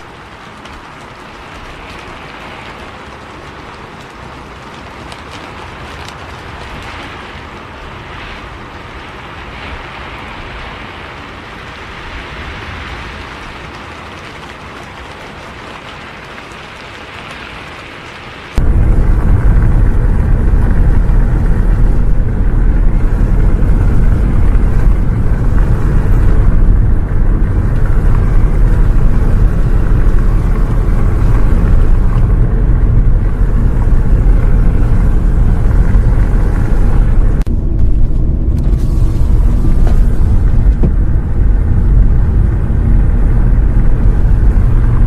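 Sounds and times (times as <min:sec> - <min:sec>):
bus engine and road noise: 0:00.0 - 0:45.0.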